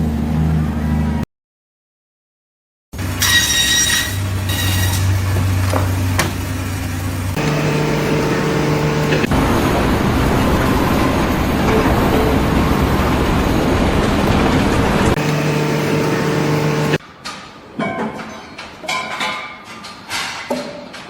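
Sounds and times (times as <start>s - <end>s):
droning engine: 3.0s - 17.0s.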